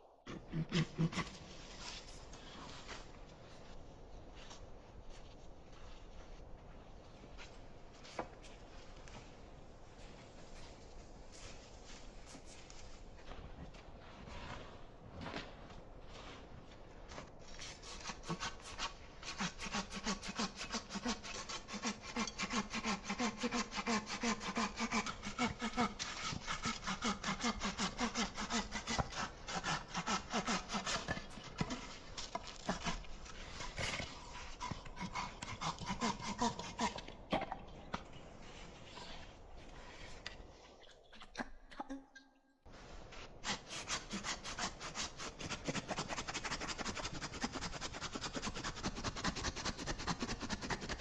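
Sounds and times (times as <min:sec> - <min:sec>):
hand saw cutting wood: 0:17.7 - 0:37.0, 0:43.4 - 0:51.0.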